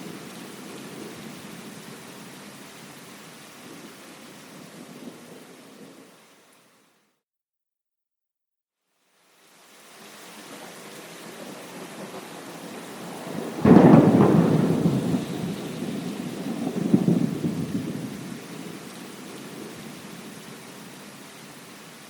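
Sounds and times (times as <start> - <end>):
steady rain hiss: 0.0 - 7.2, 8.8 - 22.0
thunder clap and rumbling: 11.6 - 18.8.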